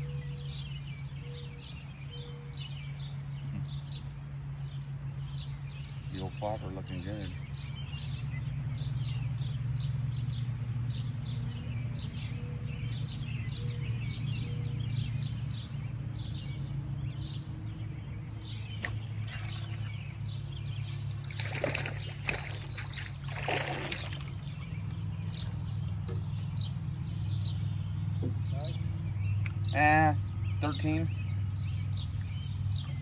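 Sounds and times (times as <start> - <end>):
birds chirping: 0.0 - 33.0
steady low hum: 0.0 - 33.0
water splashing: 18.7 - 26.3.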